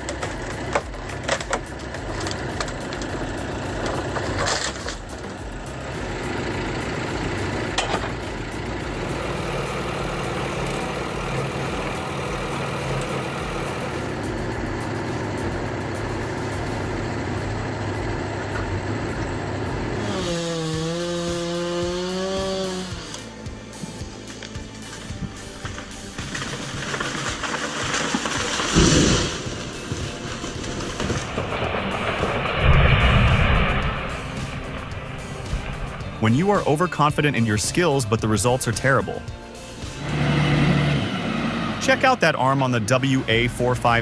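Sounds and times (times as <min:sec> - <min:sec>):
sharp wood cracks: 0:00.0 - 0:23.3, 0:24.2 - 0:36.8
heavy forestry machinery running: 0:00.0 - 0:44.0.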